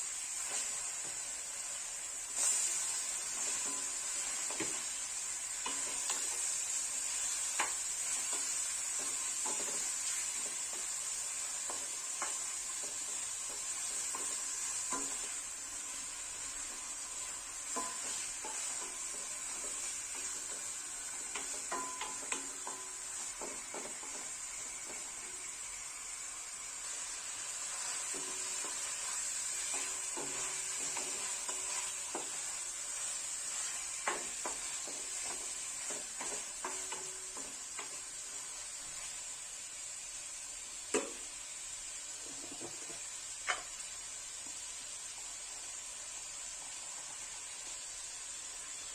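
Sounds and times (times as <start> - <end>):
food sizzling in a pan: 0.0 - 48.9
utensil clicking against pan: 17.7 - 25.1.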